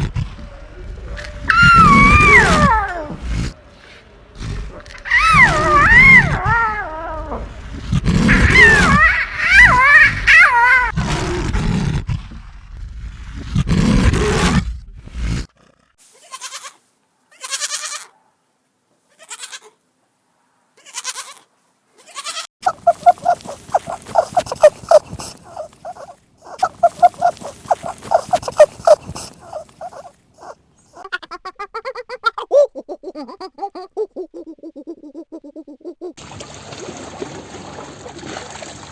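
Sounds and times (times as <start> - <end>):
low rough animal call: 0.0 - 16.1
short animal calls: 22.1 - 30.6
rapid pulsed animal calls: 22.6 - 30.6.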